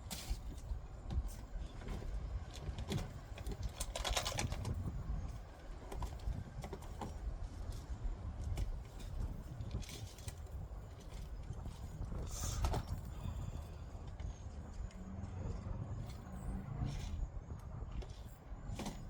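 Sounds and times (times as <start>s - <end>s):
steady low rumble: 7.2s - 19.0s.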